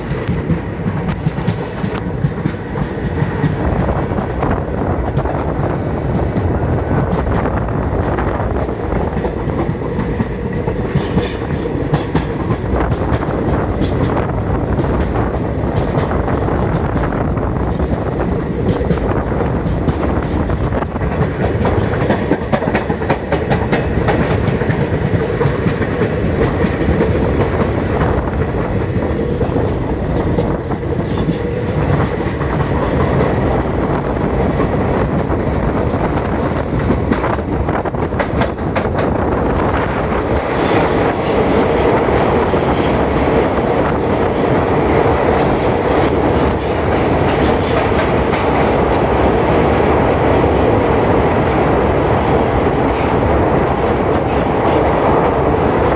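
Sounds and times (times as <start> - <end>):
train running noise: 0.0 - 55.9
wheels clicking over rail joints: 18.6 - 41.7.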